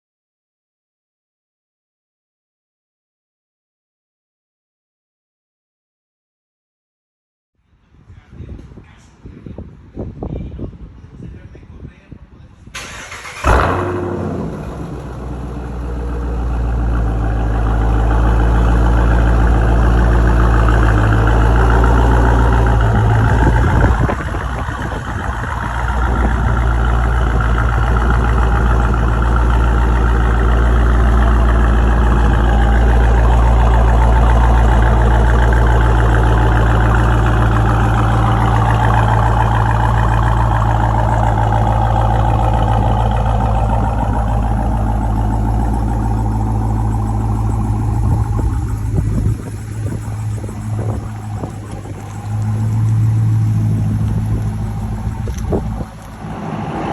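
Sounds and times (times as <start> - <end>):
engine idling loudly: 12.9 - 56.8.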